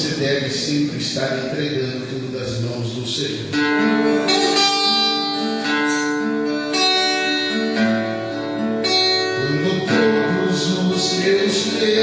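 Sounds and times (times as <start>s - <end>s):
guitar strumming chords: 3.4s - 12.0s.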